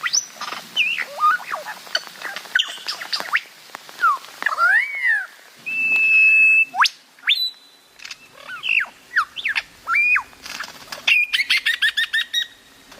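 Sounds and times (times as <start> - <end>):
bird singing whistled notes: 5.6 - 10.3, 11.1 - 12.6.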